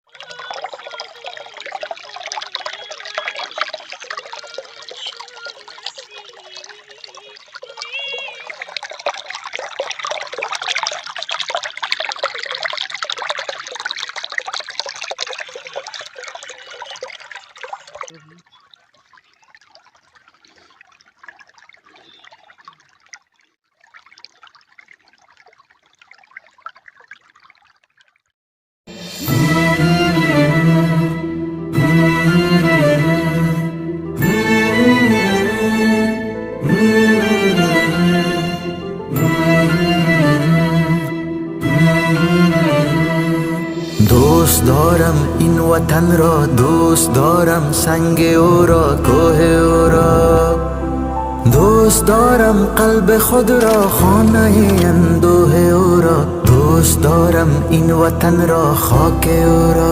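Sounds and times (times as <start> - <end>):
water running and trickling: 0.0 - 28.3, 51.4 - 59.9.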